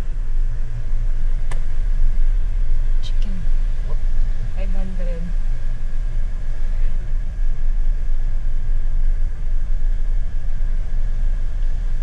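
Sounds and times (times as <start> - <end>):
road and drivetrain rumble: 0.0 - 12.0.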